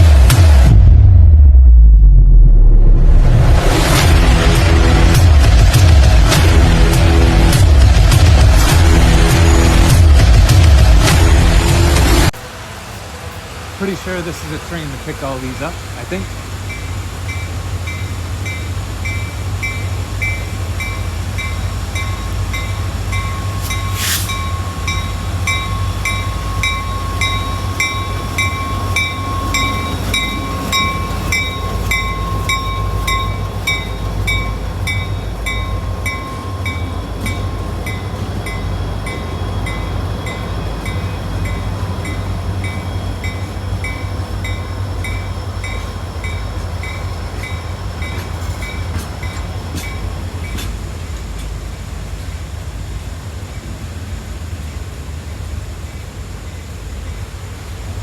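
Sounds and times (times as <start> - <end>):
train rumbling past: 0.0 - 58.0
repeating bell ringing: 16.7 - 50.6
wheel squeal: 16.7 - 50.8.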